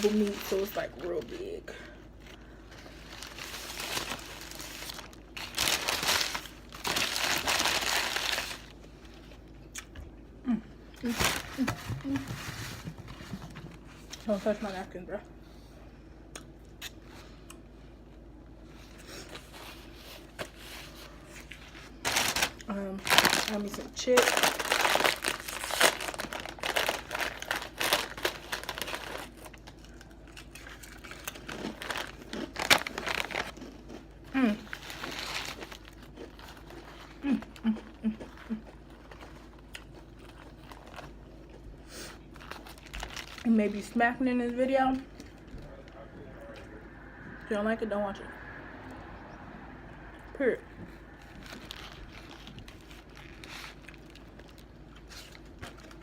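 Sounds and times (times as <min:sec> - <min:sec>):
sandwich wrapping crinkling: 0:00.0 - 0:09.5, 0:11.0 - 0:14.7, 0:18.7 - 0:44.0, 0:51.1 - 0:56.0.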